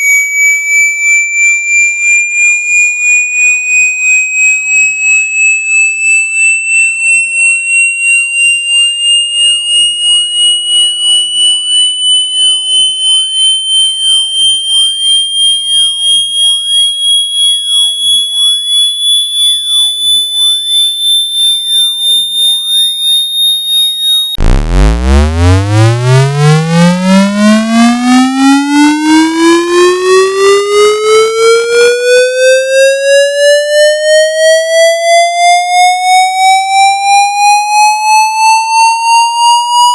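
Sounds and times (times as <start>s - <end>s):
pulsing high-pitched tone gliding up: 0.0s - 39.9s
buzzy tone sweeping upward: 24.4s - 32.2s.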